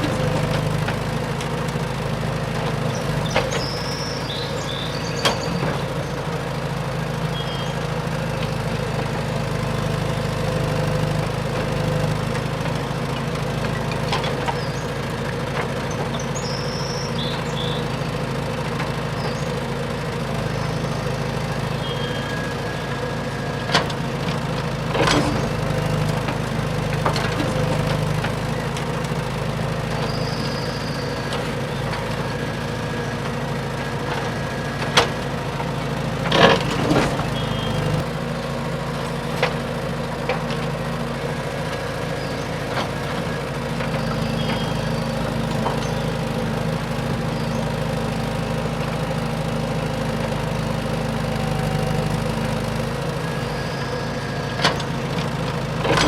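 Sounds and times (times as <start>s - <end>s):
model truck motor humming: 0.0s - 56.0s.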